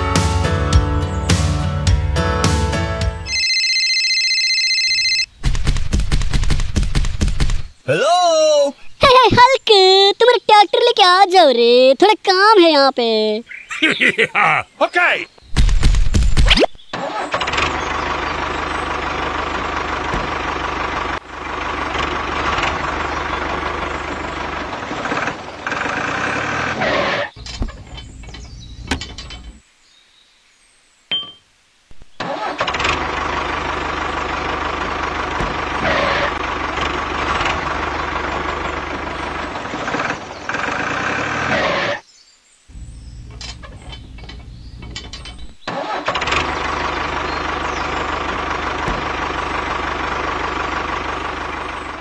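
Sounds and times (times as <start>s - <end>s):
tractor engine running: 0.0s - 7.8s, 15.6s - 29.6s, 32.0s - 42.0s, 42.7s - 52.0s.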